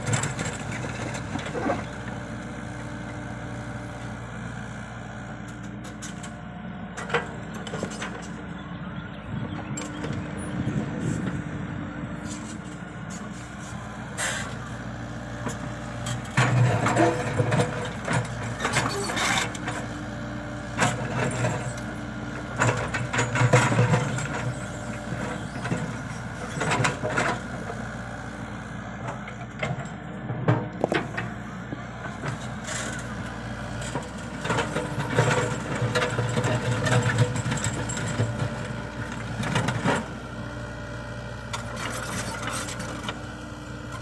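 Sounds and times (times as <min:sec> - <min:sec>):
excavator diesel engine running: 0:00.0 - 0:44.0
hydraulic hiss and clatter: 0:12.2 - 0:14.6.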